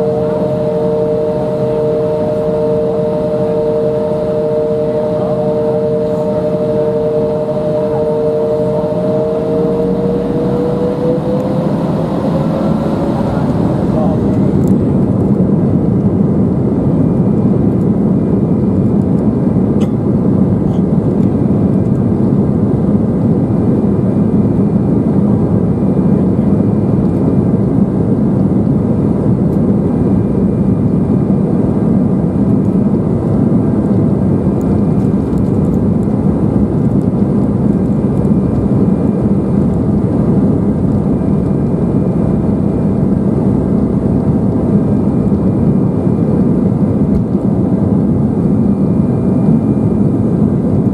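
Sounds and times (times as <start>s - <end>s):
faint high whine: 0.0s - 15.3s
airliner cabin engine drone: 0.0s - 50.9s.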